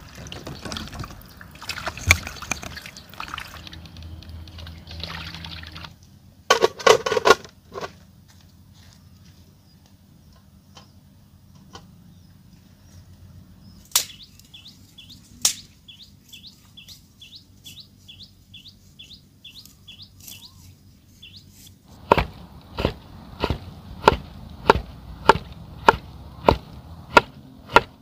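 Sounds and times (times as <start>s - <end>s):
bird chirping: 0.2s - 4.2s, 11.8s - 21.7s
sharp cracks: 13.9s - 14.3s
low steady rumble: 21.9s - 28.0s.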